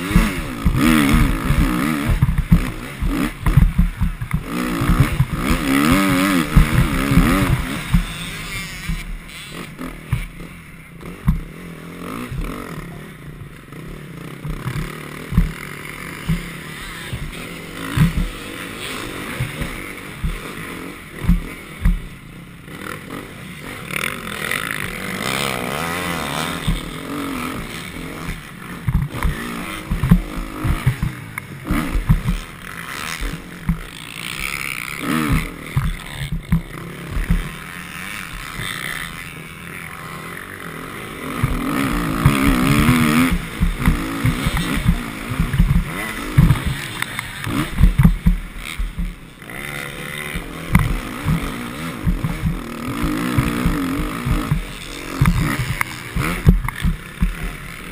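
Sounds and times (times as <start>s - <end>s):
motocross bike engine revving: 0.0s - 57.9s
short low thumps: 47.7s - 49.2s.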